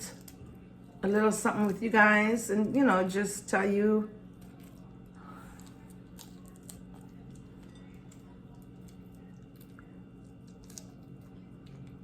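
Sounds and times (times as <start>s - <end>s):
steady low hum: 0.0s - 12.0s
person chewing: 4.4s - 12.0s.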